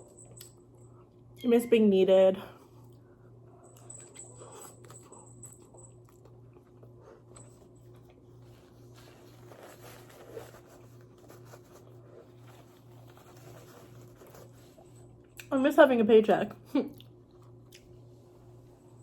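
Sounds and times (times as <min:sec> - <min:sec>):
steady low hum: 0:00.0 - 0:19.0
chewing and crunching food: 0:02.8 - 0:15.5, 0:16.5 - 0:18.1.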